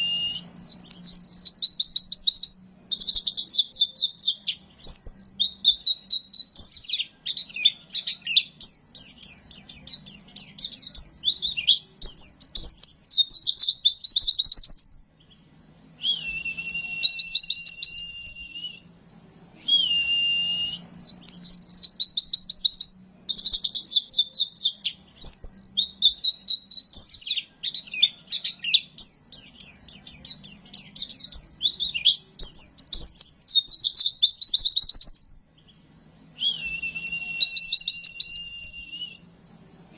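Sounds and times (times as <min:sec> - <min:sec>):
held whistle-like note: 0:00.0 - 0:00.6, 0:16.0 - 0:18.9, 0:19.6 - 0:21.0, 0:36.4 - 0:39.2
bird twittering song: 0:00.0 - 0:39.9.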